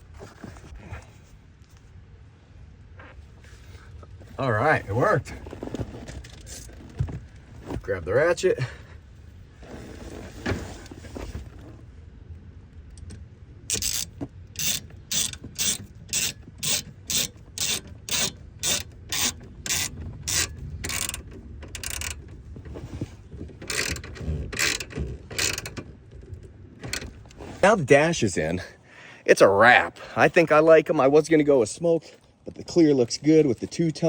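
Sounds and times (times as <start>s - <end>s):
socket ratchet clicking: 13.7s - 22.2s, 23.7s - 25.8s.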